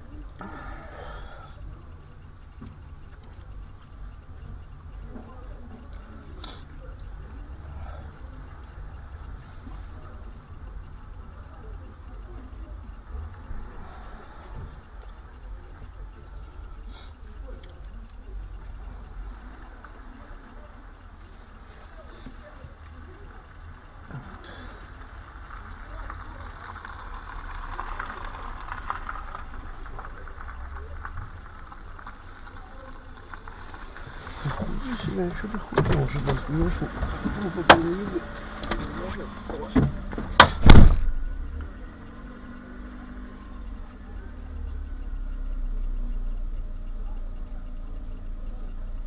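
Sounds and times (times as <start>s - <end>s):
car engine and road noise: 0.0s - 49.0s
crackly hiss: 0.0s - 49.0s
light ticking: 0.0s - 49.0s
low vehicle rumble: 0.0s - 49.0s
car crash impacts: 38.7s - 41.2s.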